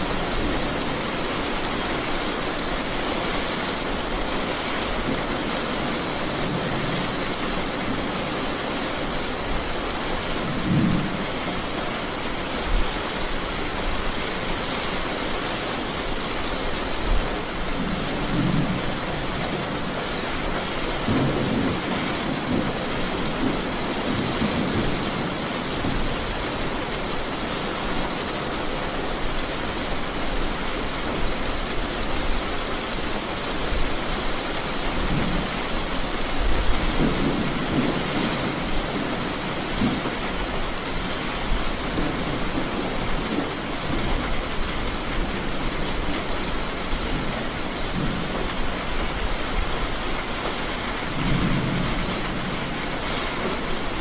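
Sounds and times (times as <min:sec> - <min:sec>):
heavy rain: 0:00.0 - 0:54.0
thunder rumbling: 0:50.9 - 0:54.0.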